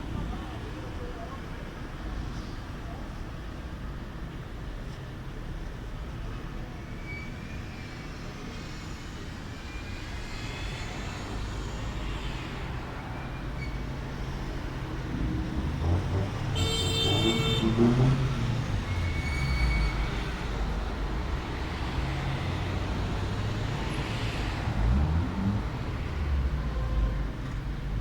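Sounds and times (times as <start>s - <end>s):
road traffic rumble: 0.0s - 28.0s
vehicle approaching: 11.0s - 28.0s.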